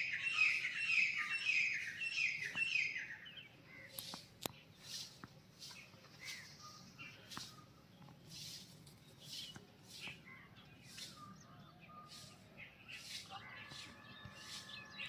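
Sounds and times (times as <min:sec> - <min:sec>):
birds chirping: 0:00.0 - 0:15.0
soft rustling strokes: 0:04.0 - 0:11.4.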